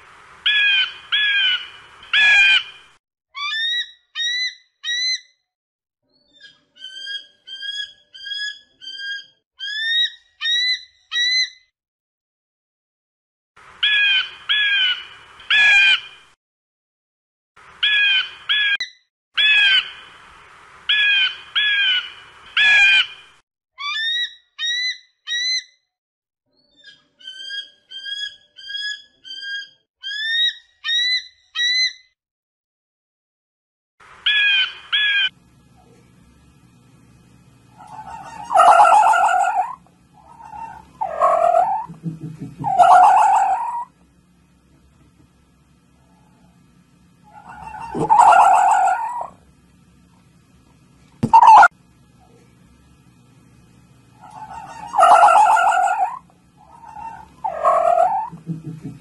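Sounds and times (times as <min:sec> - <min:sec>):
eagle piping whistles: 0:51.2 - 0:51.7.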